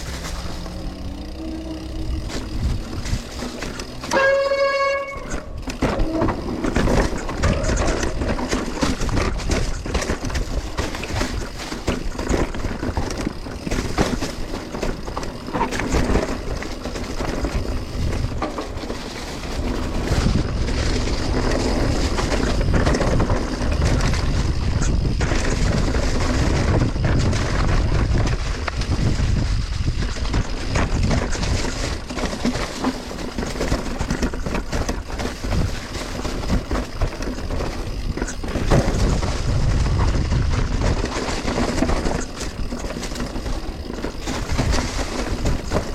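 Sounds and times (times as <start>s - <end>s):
high steady squeal: 0.0s - 8.1s
mountain bike rattling over trail: 0.0s - 45.9s.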